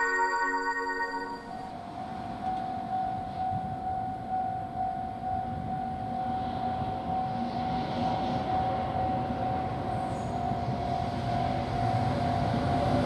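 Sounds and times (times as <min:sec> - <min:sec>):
steady high tone: 0:00.0 - 0:07.5
freight train rumble: 0:00.0 - 0:13.0.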